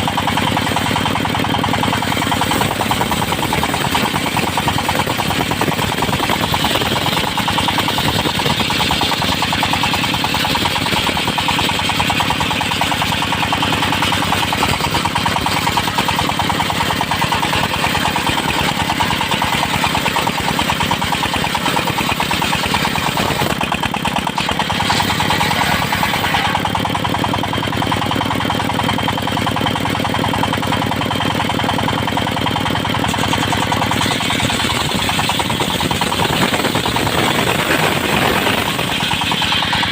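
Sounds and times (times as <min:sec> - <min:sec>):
circular saw blade cutting wood: 0:00.0 - 0:26.9, 0:33.0 - 0:39.9
engine running with pulsing beat: 0:00.0 - 0:39.9.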